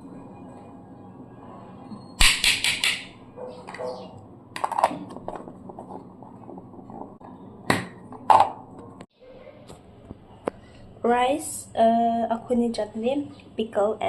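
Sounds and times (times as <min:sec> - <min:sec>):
sharp dish clicks: 0:02.2 - 0:03.1.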